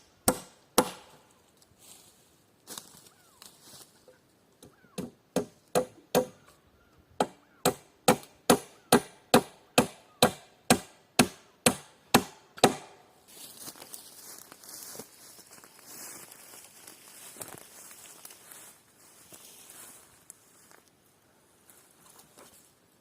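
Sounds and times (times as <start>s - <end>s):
tool striking wood: 0.2s - 1.2s, 5.0s - 6.4s, 7.2s - 13.0s
faint rustle: 1.4s - 4.4s, 13.3s - 23.0s.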